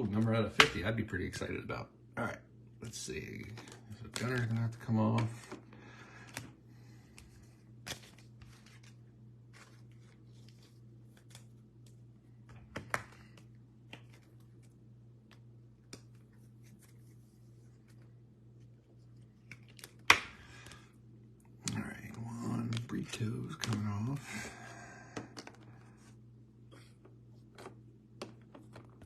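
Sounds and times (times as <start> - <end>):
low electrical hum: 0.0 - 29.0
trading cards clicking: 21.6 - 24.2.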